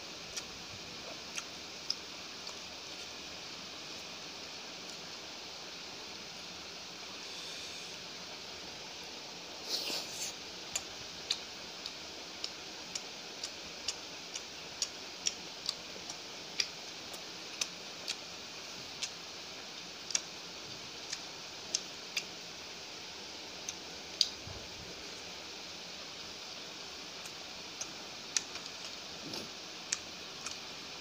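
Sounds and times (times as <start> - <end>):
steady hiss: 0.0 - 31.0
person chewing with lip-smacking: 0.2 - 3.2, 9.6 - 18.3, 18.9 - 22.4, 27.2 - 30.8.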